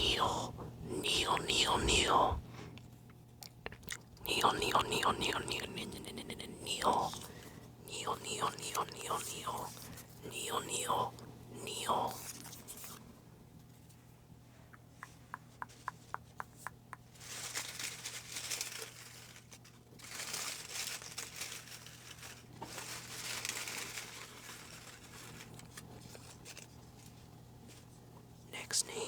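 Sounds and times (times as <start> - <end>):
paper crinkling and rustling: 17.1 - 28.0.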